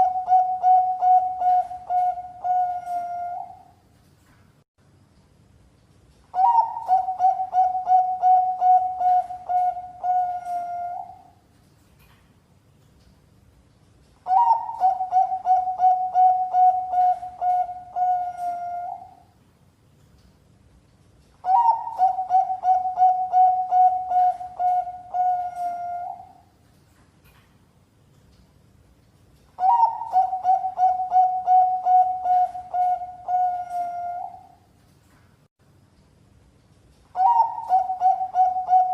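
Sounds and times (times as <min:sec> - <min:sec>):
dove cooing: 0:00.0 - 0:03.7, 0:06.4 - 0:11.4, 0:14.3 - 0:19.2, 0:21.4 - 0:26.4, 0:29.6 - 0:34.6, 0:37.2 - 0:38.9.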